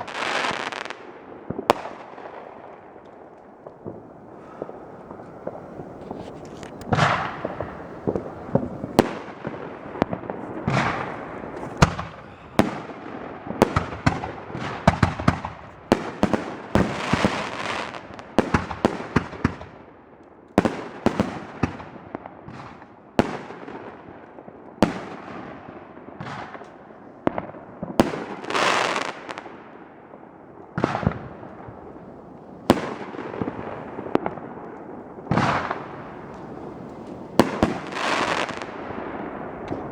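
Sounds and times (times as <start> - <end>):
fireworks barrage: 0.0 - 19.2, 30.8 - 39.9
hissing firework bursts: 3.7 - 15.2, 30.9 - 39.9.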